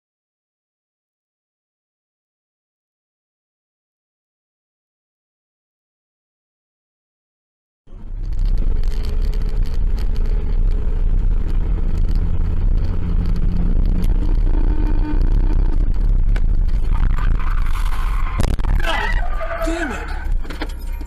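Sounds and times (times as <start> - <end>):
car engine and road noise: 7.9 - 21.0.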